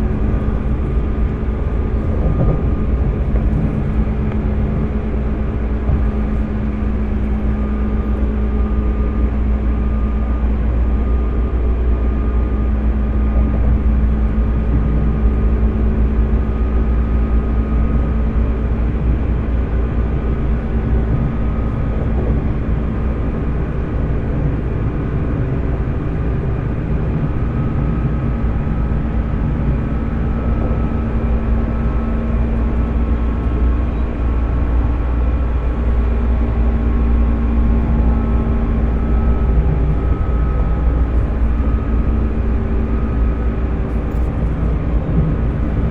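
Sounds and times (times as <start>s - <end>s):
electric train rumble and hum: 0.0s - 45.9s.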